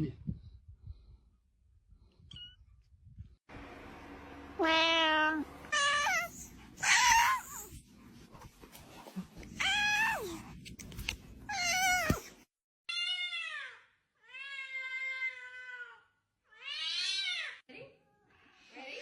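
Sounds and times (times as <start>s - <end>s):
cat meowing: 4.6s - 7.7s, 9.6s - 10.4s, 11.5s - 12.2s.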